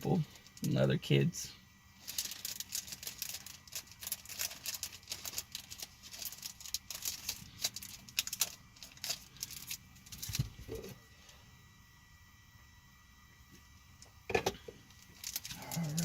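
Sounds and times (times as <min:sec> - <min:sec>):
cards and plastic packaging rustling: 0:02.0 - 0:11.0, 0:14.6 - 0:16.0.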